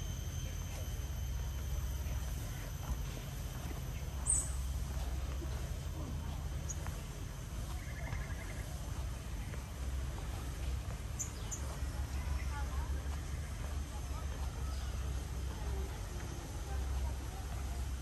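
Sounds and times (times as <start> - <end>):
low steady rumble: 0.0 - 18.0
bird chirps: 3.6 - 4.7, 11.1 - 12.6
bird trill: 3.9 - 4.6.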